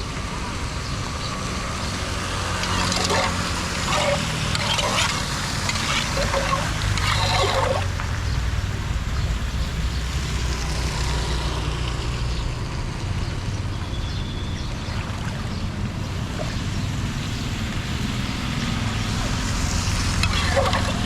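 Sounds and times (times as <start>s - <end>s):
floodwater rushing: 2.1s - 8.2s, 15.1s - 21.0s.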